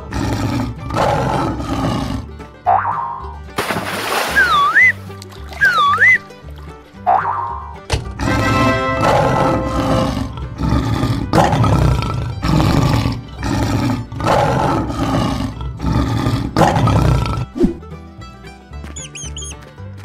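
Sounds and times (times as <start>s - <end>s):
lion roaring: 0.0s - 2.3s, 8.2s - 17.6s
cheerful background music: 0.0s - 14.7s, 16.7s - 20.0s.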